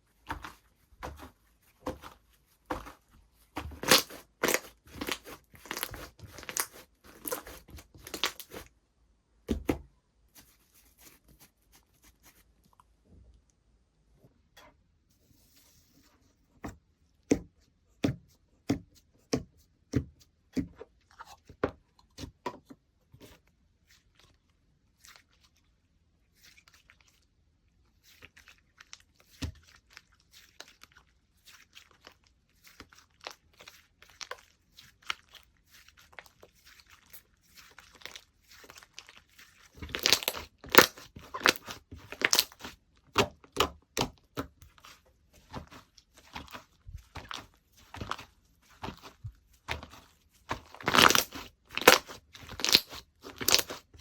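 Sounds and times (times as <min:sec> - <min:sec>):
slime squishing and popping: 0:03.6 - 0:08.7, 0:37.1 - 0:44.7, 0:45.4 - 0:54.0.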